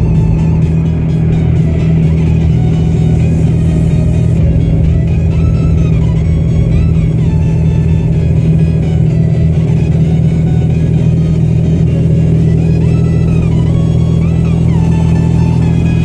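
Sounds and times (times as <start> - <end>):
car driving drone: 0.0 - 16.0.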